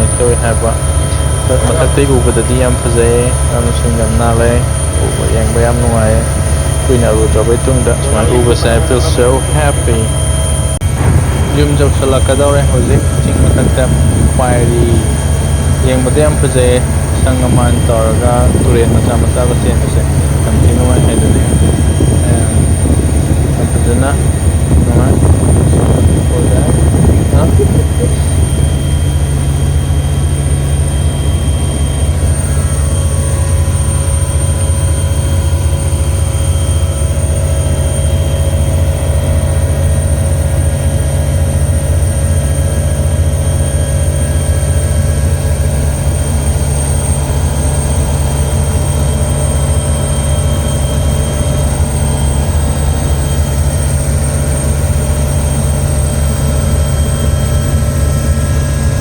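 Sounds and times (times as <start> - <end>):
helicopter engine and rotor drone: 0.0 - 59.0.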